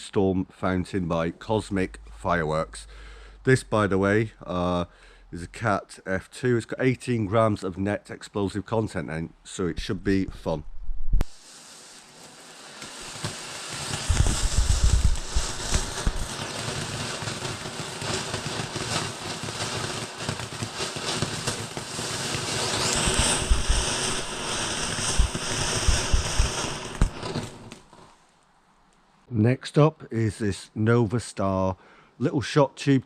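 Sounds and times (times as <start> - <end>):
firework fountain hissing and crackling: 11.2 - 28.2.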